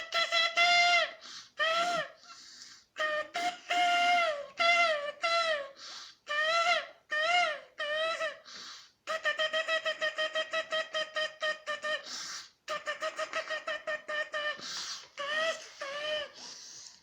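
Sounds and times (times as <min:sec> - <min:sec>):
short breathy hiss: 0:14.6 - 0:15.1, 0:16.4 - 0:17.0.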